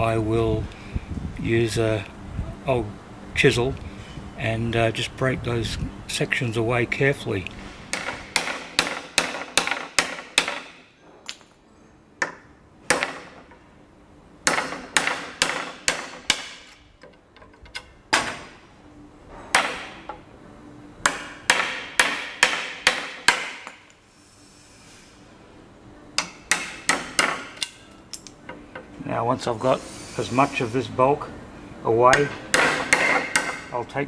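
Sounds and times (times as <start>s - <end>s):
chisel struck on wood: 7.9s - 10.8s, 12.2s - 13.4s, 14.4s - 16.7s, 21.0s - 23.8s, 26.2s - 27.6s, 32.1s - 33.7s.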